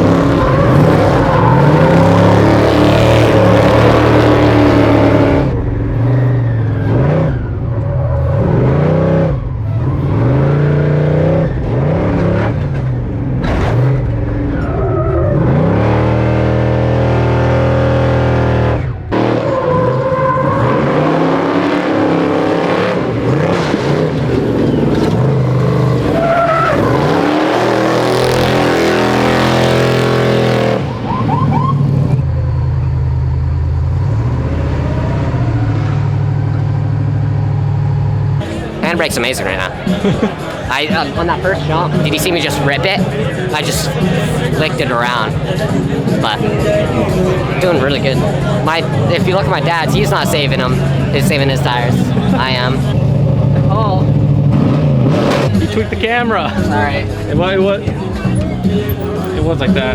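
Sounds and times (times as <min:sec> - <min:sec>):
truck engine revving: 0:00.0 - 0:59.9.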